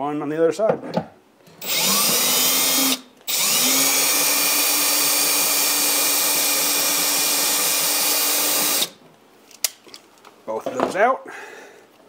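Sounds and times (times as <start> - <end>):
cordless drill whining: 1.6 - 9.0.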